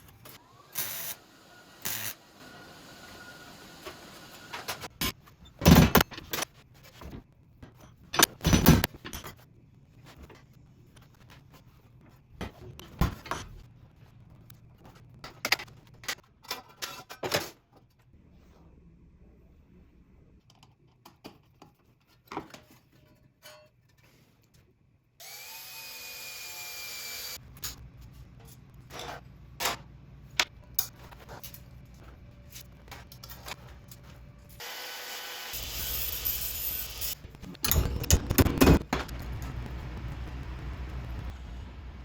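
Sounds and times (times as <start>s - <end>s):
parts and tools clattering: 15.3s - 18.0s.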